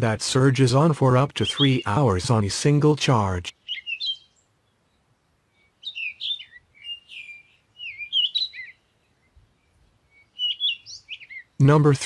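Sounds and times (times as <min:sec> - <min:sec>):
songbird twittering: 0:01.3 - 0:02.2, 0:03.5 - 0:11.8.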